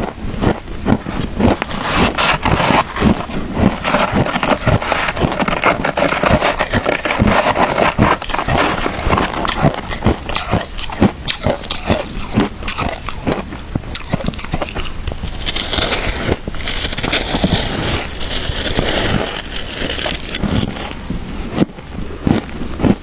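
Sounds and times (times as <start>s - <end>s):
chewing crunchy ice: 0.0s - 23.0s.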